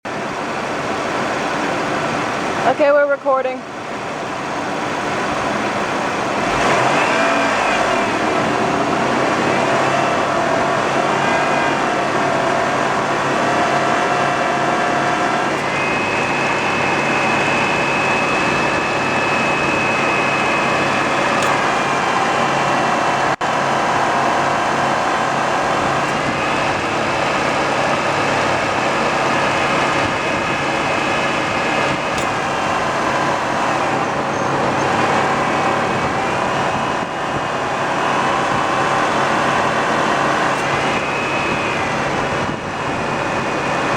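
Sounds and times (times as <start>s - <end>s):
high compressor whine: 0.0s - 43.9s
car engine running: 3.7s - 43.9s.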